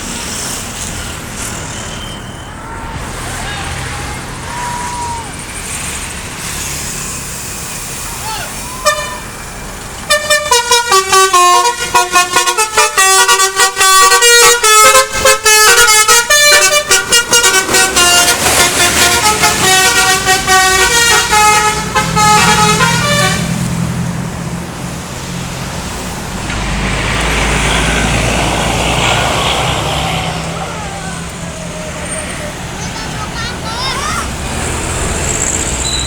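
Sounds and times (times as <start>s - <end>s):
multi-tone musical bus horn: 7.0s - 9.4s, 10.0s - 23.8s.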